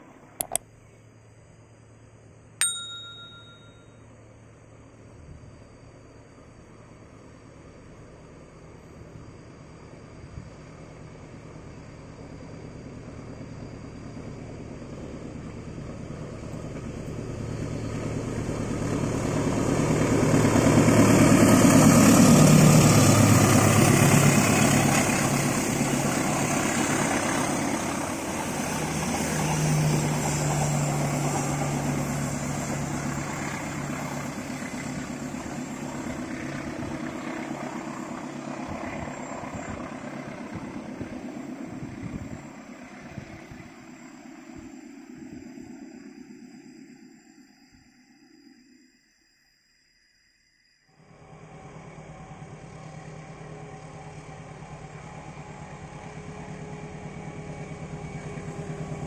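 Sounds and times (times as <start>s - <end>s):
locomotive engine passing: 14.2s - 41.6s, 51.0s - 59.0s.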